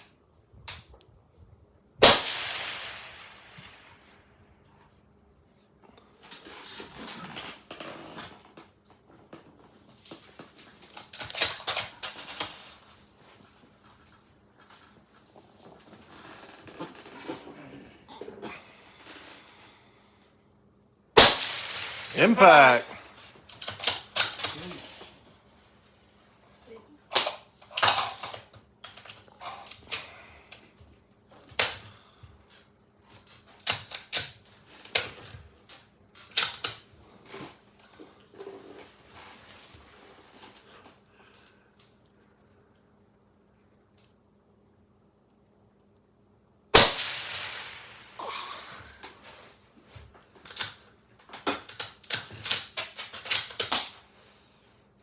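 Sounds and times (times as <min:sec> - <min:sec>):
rifle shots cracking: 0:02.0 - 0:03.6, 0:21.2 - 0:23.2, 0:46.8 - 0:48.1.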